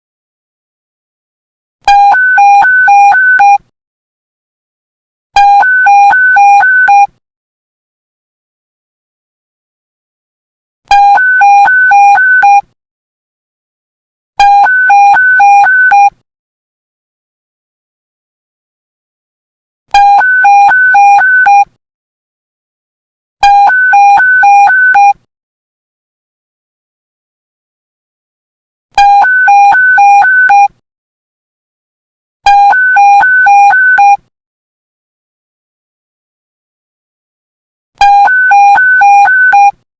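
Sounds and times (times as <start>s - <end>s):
alternating low and high alert beeps: 10.9s - 12.6s, 14.4s - 16.1s, 20.0s - 21.7s, 23.4s - 25.2s, 29.0s - 30.7s, 32.5s - 34.2s, 38.0s - 39.8s.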